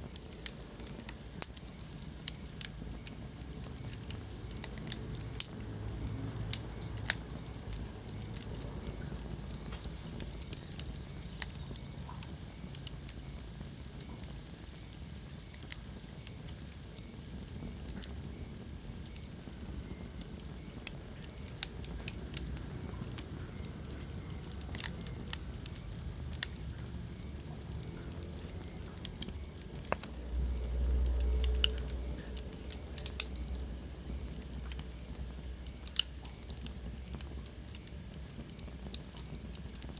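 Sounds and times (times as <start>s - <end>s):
fire hissing: 0.0s - 39.9s
wood fire crackling: 0.0s - 39.9s
low rumble: 25.0s - 35.7s.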